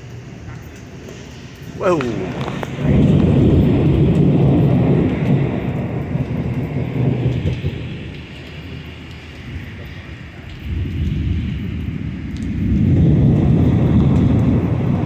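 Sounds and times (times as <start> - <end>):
rolling thunder: 0.0 - 15.0.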